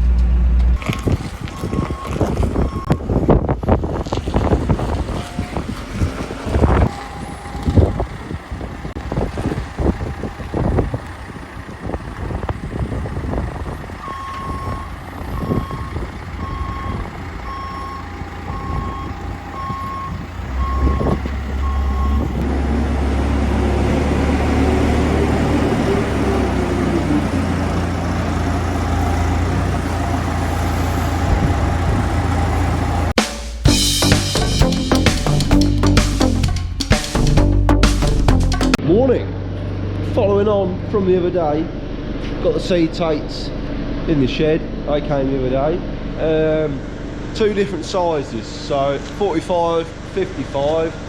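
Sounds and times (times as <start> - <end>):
heavy engine running: 0.0 - 51.0
reversing alarm beeping: 0.8 - 3.5, 5.0 - 9.0, 14.0 - 22.5.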